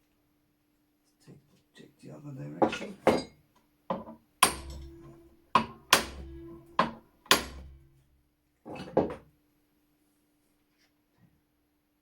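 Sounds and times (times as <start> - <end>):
hammer blows on metal: 4.4 - 8.0.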